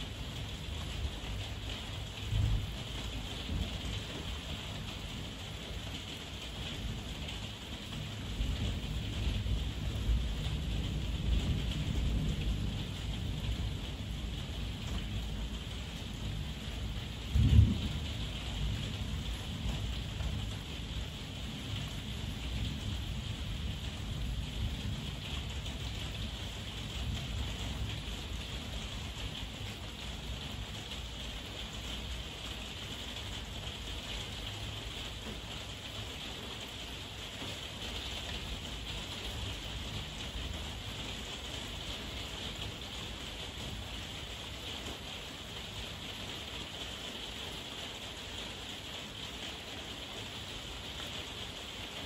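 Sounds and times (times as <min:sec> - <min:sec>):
heavy rain hissing: 0:00.0 - 0:52.0
low rumbling thunder: 0:02.2 - 0:04.0, 0:08.2 - 0:15.5, 0:16.2 - 0:20.9
deep thunderclap: 0:17.3 - 0:19.2.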